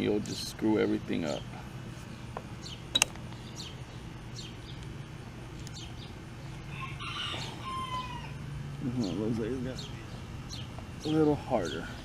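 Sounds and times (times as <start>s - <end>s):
low steady hum: 0.0s - 12.0s
small birds chirping: 0.0s - 12.0s
rooster crowing: 6.6s - 8.6s.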